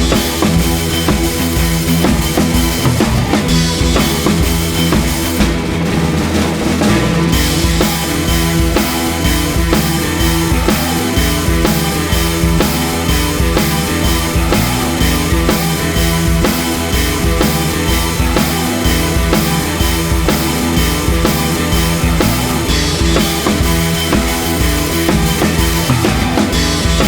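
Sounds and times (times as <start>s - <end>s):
rock music with drums and guitars: 0.0s - 27.0s.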